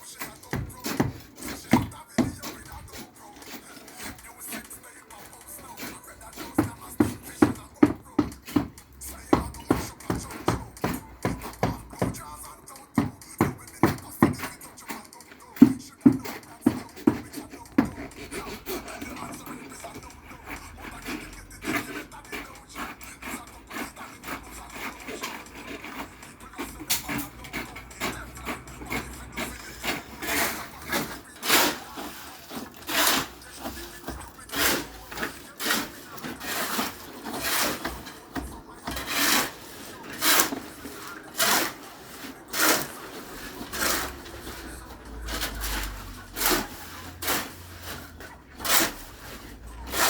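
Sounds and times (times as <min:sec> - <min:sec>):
scraping and rubbing: 0:00.0 - 0:50.0
hammer knocking on formwork: 0:00.4 - 0:02.8, 0:06.4 - 0:14.6, 0:15.6 - 0:18.4.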